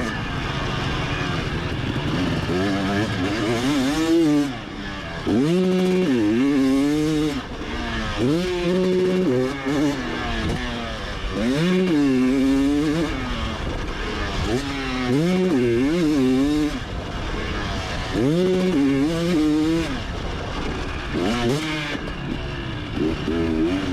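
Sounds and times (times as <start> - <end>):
motocross bike engine revving: 0.0 - 23.9.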